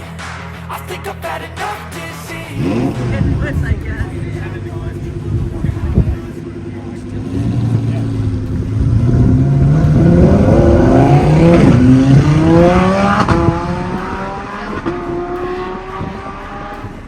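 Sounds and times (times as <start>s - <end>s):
car engine accelerating hard: 2.4s - 17.0s.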